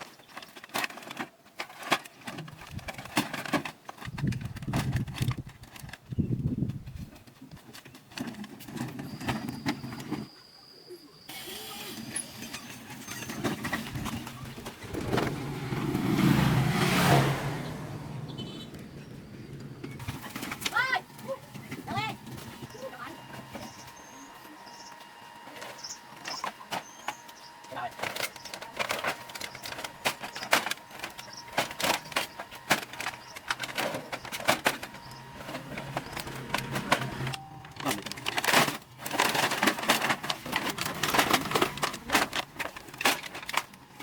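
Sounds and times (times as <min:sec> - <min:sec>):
motor vehicle passing by: 0:14.5 - 0:20.4.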